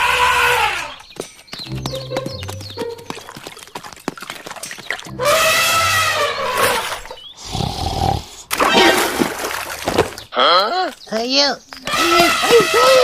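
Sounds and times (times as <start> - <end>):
animal cry: 0.0 - 1.0, 5.2 - 7.0, 11.9 - 13.0.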